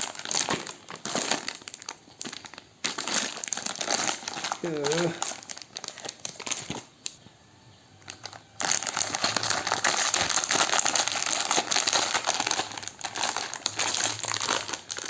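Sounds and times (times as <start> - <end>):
packaging crinkling: 0.0 - 7.2, 8.0 - 15.0.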